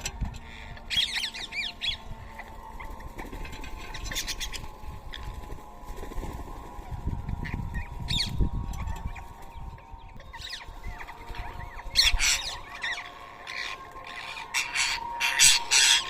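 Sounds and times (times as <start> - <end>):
parakeets screeching: 0.1 - 5.3, 7.3 - 16.0.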